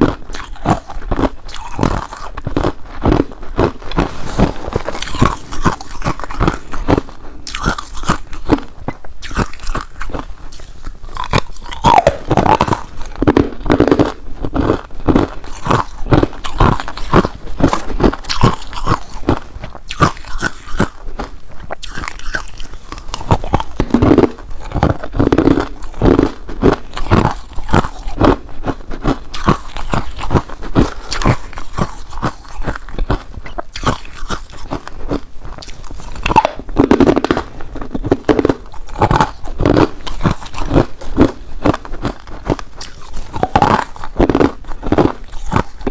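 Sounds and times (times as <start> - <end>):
person crunching ice: 0.0 - 45.9.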